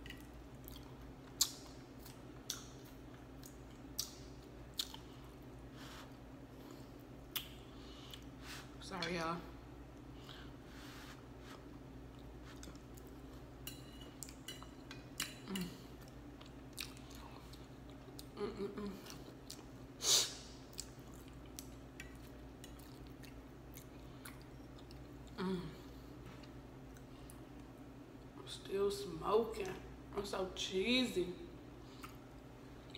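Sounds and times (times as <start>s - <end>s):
woman chewing with wet clicks: 0.0s - 5.6s, 7.2s - 8.3s, 12.0s - 19.8s, 20.6s - 25.4s, 31.9s - 32.9s.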